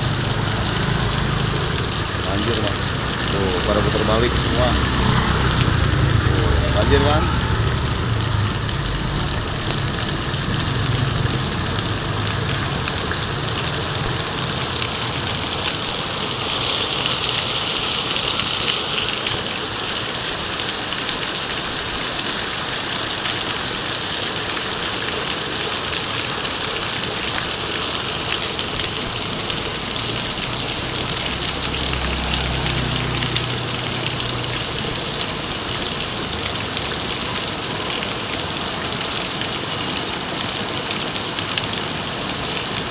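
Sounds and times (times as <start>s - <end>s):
vehicle engine running low: 0.0s - 17.3s, 28.5s - 37.4s
heavy rain pouring: 0.0s - 42.9s.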